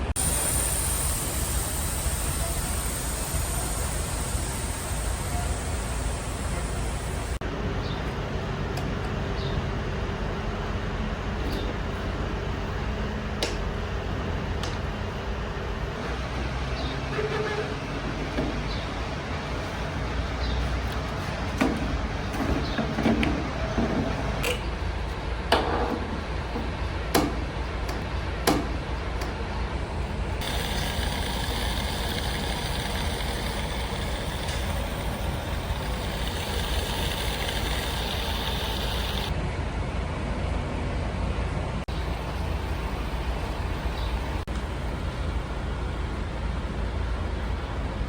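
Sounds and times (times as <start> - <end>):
steady hiss: 0.0 - 7.4, 30.4 - 39.4, 41.9 - 46.0
vehicle engine rumble: 0.0 - 25.5, 26.1 - 48.0.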